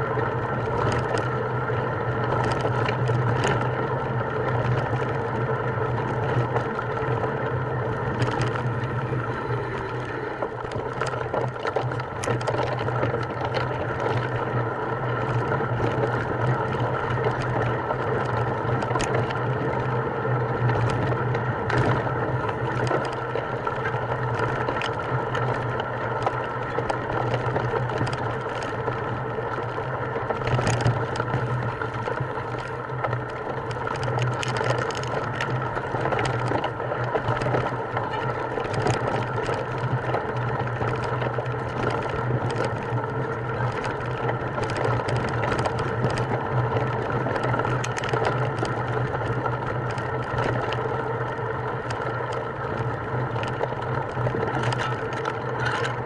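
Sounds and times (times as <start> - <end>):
motor humming: 0.0 - 34.0.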